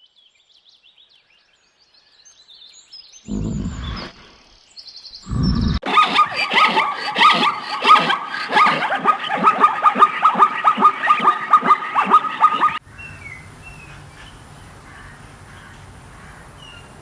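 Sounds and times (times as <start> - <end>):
animal yelping: 3.3 - 4.2, 5.3 - 12.8.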